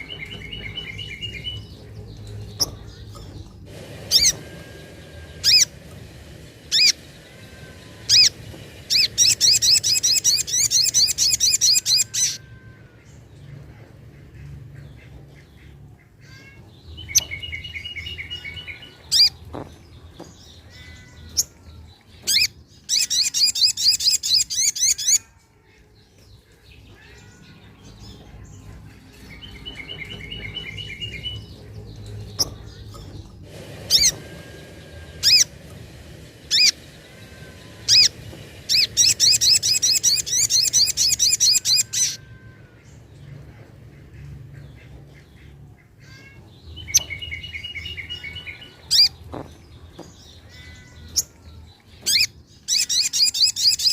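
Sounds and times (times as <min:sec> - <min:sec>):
bird chattering trills: 0:00.0 - 0:25.4, 0:26.2 - 0:53.9
bird fast high trills: 0:03.7 - 0:13.3, 0:33.5 - 0:43.1.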